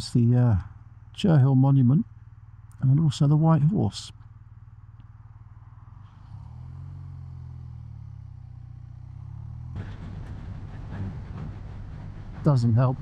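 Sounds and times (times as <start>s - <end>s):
motorcycle engine running: 2.1s - 12.3s.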